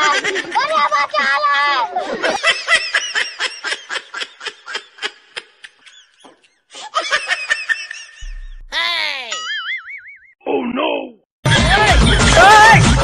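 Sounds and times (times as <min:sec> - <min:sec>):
person laughing: 0:04.8 - 0:09.7.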